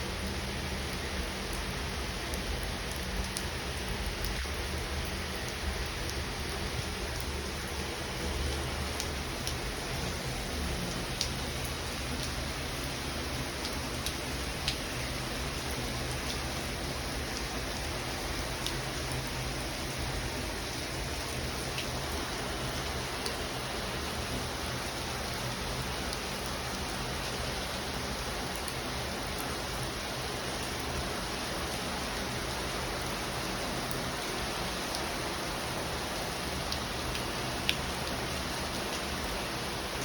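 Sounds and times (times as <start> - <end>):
heavy rain falling: 0.1 - 40.0
drip ticks: 13.6 - 14.8, 36.7 - 38.2.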